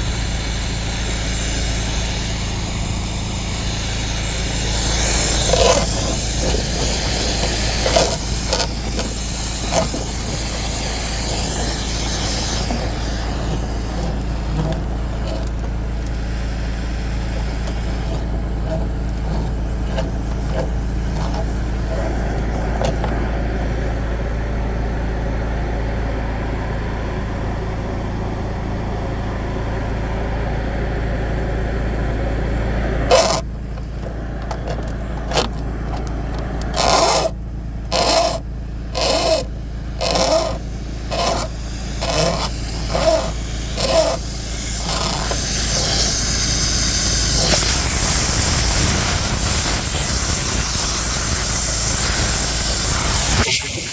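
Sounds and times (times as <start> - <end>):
short bursts of hissing: 0.0 - 23.0, 36.6 - 53.9.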